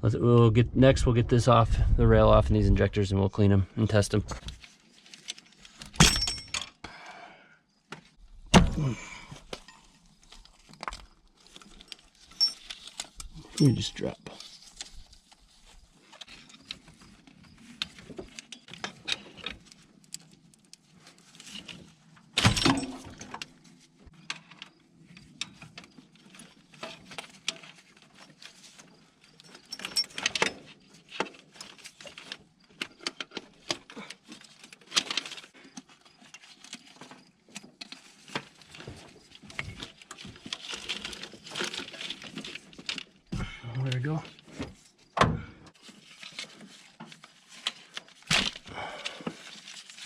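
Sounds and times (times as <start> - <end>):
hand tools clicking and clinking: 10.8 - 14.2, 29.3 - 30.8.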